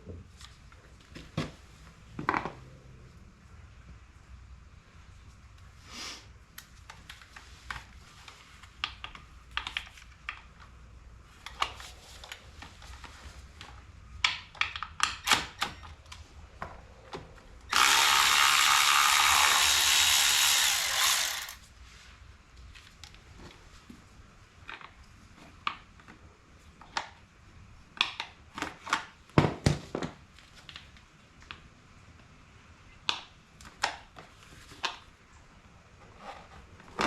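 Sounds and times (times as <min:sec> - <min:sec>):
hand tools clicking: 0:17.7 - 0:21.6
ratchet working on a bolt: 0:17.7 - 0:21.6.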